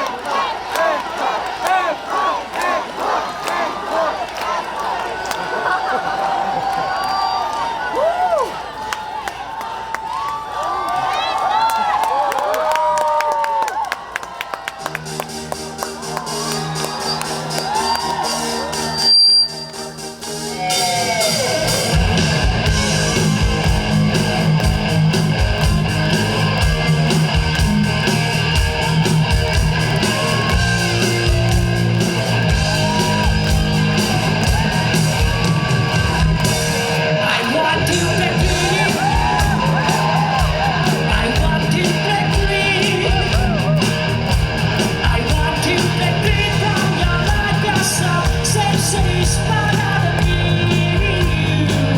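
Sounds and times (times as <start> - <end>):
crowd: 0.0 - 51.9
live rock band playing: 14.9 - 51.9
steady drum beat: 20.0 - 37.2, 37.8 - 51.9.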